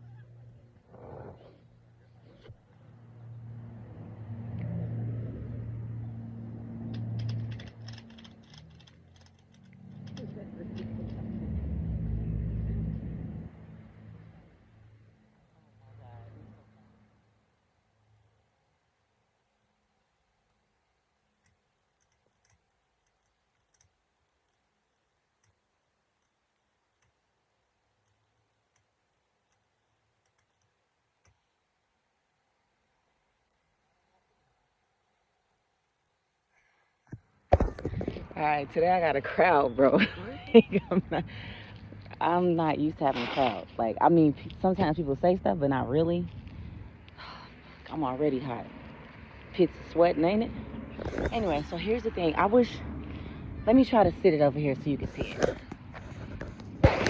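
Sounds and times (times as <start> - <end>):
low engine-like hum: 0.0 - 18.4, 37.8 - 56.8.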